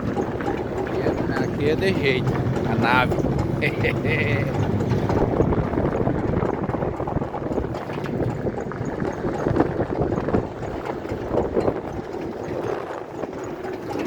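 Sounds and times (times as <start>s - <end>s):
vehicle driving on rough track: 0.0s - 14.0s
wind buffeting microphone: 0.0s - 14.0s.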